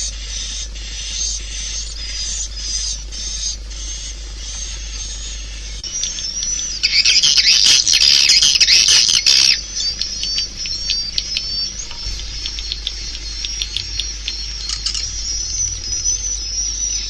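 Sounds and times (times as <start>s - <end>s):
high chirps and clicks: 2.0s - 17.0s
swiftlets chirping: 5.8s - 17.0s.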